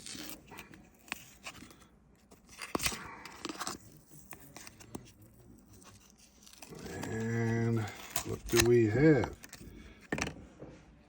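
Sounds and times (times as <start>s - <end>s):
cardboard crackling and tearing: 2.4s - 9.6s.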